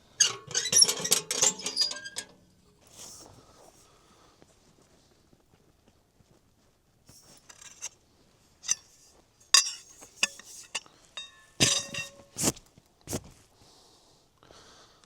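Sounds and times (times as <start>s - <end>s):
kitchenware clinking and knocking: 9.6s - 12.3s.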